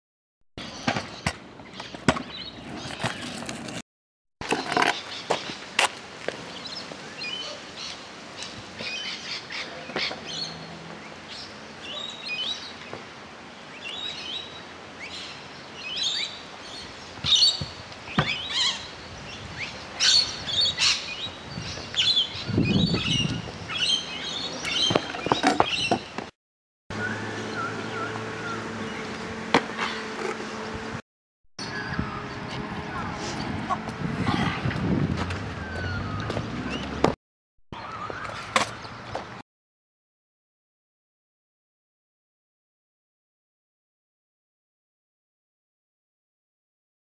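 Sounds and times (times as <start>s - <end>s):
birds chirping: 0.6s - 3.4s, 6.4s - 26.3s, 26.9s - 31.0s, 31.6s - 39.4s
scooter landing on asphalt: 0.7s - 3.8s.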